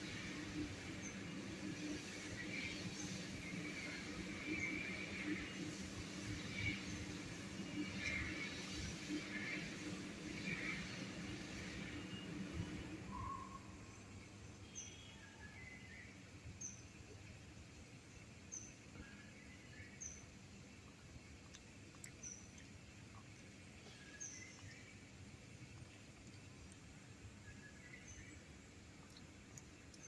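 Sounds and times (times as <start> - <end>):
low background noise: 0.0 - 30.0
faint high bird chirp: 13.0 - 16.9.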